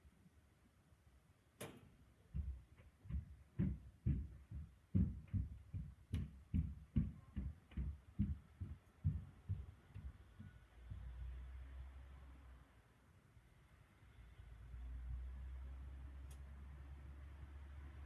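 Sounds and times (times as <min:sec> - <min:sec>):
dull low thumps: 0:02.3 - 0:11.2.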